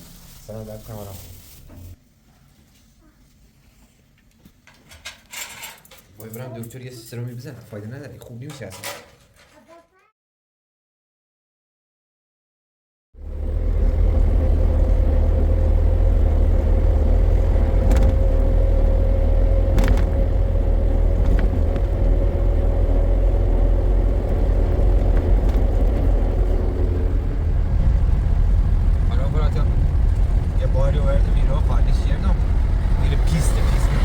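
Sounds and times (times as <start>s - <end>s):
vehicle engine low rumble: 13.2s - 34.0s.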